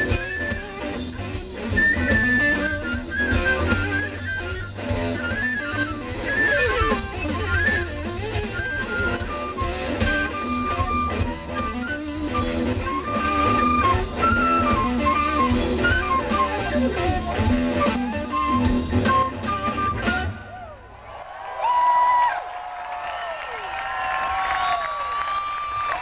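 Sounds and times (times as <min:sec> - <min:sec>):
blues-rock band playing: 0:00.0 - 0:20.6
electric guitar lead: 0:00.0 - 0:20.7
crowd whooping and cheering: 0:19.5 - 0:26.0.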